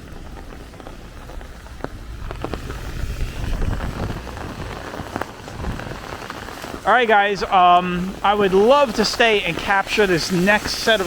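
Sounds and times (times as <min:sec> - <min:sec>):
low rumble: 0:00.0 - 0:10.3
rain on a wet street: 0:00.0 - 0:11.0.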